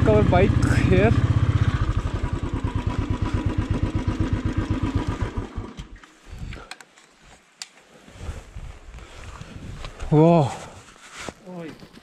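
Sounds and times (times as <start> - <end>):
motorcycle engine idling: 0.0 - 6.0.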